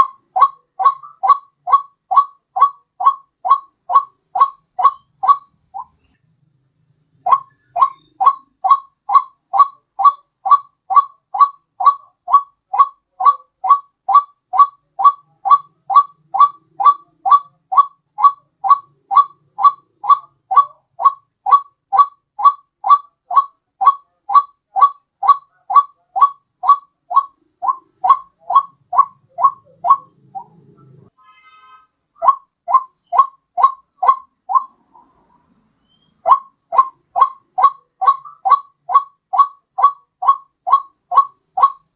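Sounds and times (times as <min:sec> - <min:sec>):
waterhen calling short rising notes: 0:00.0 - 0:06.1, 0:07.3 - 0:30.5.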